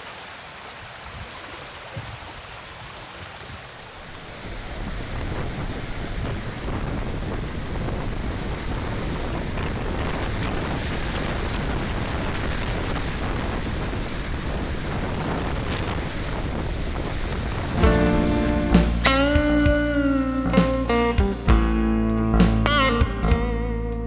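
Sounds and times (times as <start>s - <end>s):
storm water and surf: 0.0s - 21.1s
wind buffeting the microphone: 1.0s - 19.7s.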